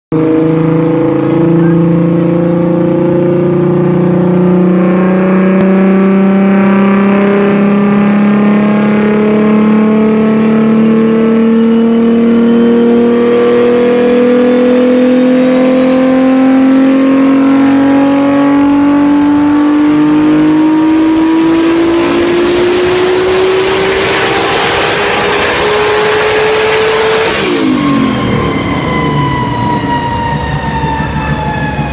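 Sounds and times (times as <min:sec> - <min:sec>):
car engine at full throttle: 0:00.1 - 0:31.9.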